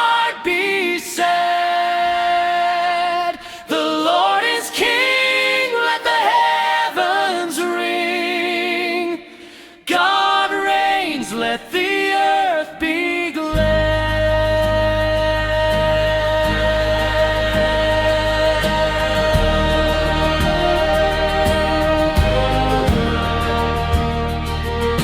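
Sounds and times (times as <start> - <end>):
choir singing a hymn: 3.7 - 12.9, 16.2 - 25.0.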